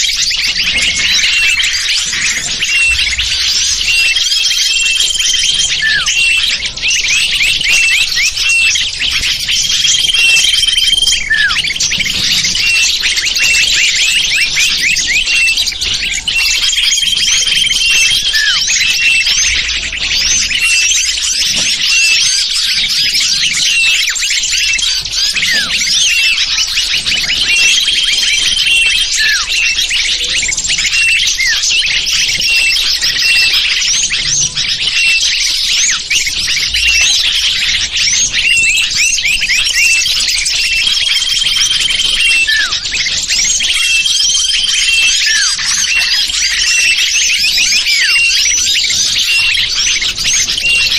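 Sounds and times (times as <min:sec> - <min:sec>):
held level whistle: 0:00.0 - 0:15.8, 0:38.4 - 0:50.9
small birds chirping and twittering: 0:00.0 - 0:50.9.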